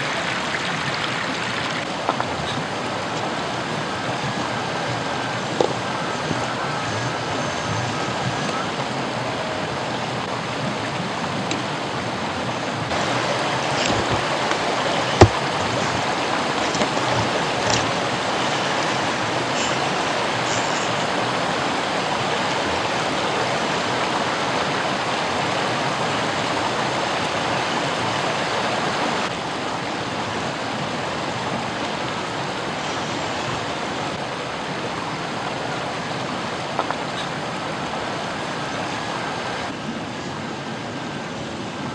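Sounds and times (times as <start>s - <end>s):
river water rushing over rocks: 0.0s - 41.9s.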